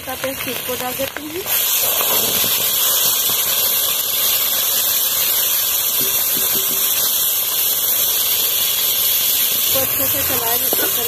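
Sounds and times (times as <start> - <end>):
onion paste sizzling in oil: 0.0 - 11.0.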